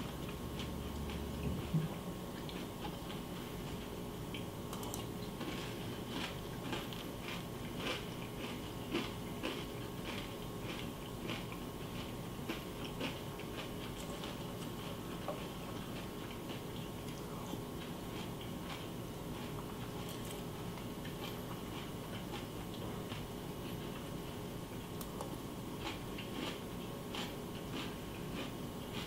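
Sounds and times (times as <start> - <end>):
low background hum: 0.0 - 29.0
person crunching cereal: 5.4 - 15.1.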